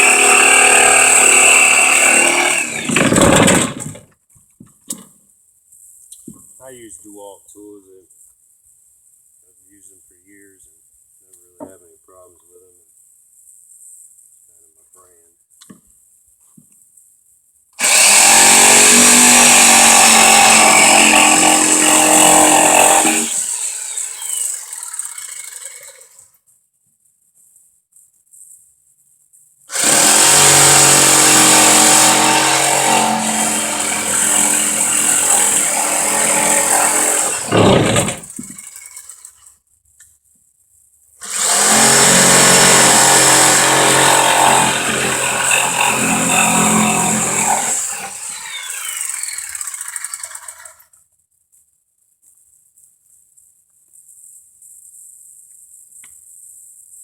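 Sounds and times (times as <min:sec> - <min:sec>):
power tool motor whine: 0:00.0 - 0:04.0, 0:17.8 - 0:26.2, 0:29.7 - 0:39.2, 0:41.2 - 0:50.8.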